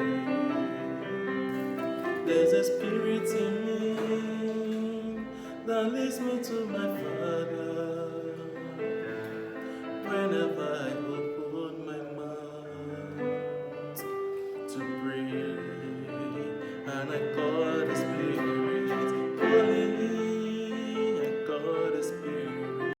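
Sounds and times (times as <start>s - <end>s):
person singing gospel with vibrato: 0.0s - 14.1s, 14.7s - 23.0s.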